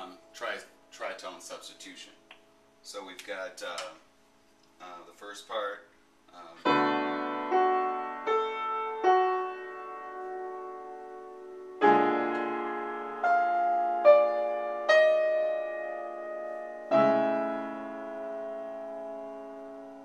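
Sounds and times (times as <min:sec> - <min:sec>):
piano jazz line: 0:06.6 - 0:20.0.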